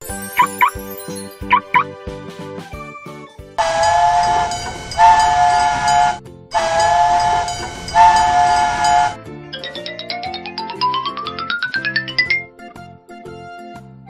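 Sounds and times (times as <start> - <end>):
cartoon steam train whistle: 3.6 - 9.2
steam hissing: 3.6 - 9.2.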